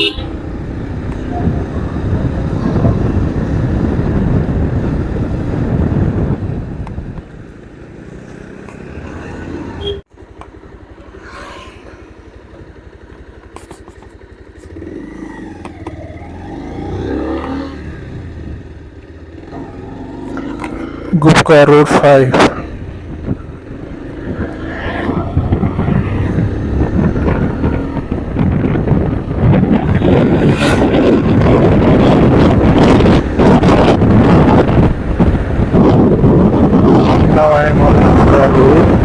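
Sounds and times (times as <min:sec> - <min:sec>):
motorcycle engine running: 0:00.0 - 0:21.2, 0:22.0 - 0:39.0.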